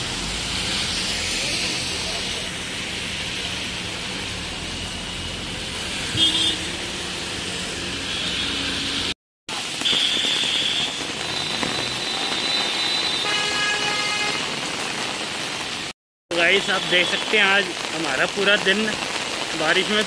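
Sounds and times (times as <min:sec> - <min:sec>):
heavy rain hissing: 0:00.0 - 0:20.0
traffic hum: 0:00.0 - 0:20.0.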